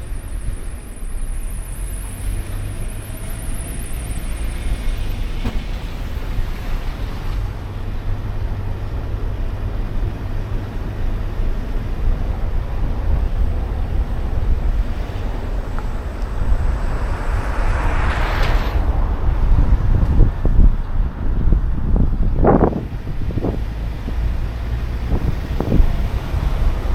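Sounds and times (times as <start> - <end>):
street traffic noise: 0.0 - 26.9
wind rumble on microphone: 0.0 - 26.9
vehicle passing close: 12.0 - 26.9.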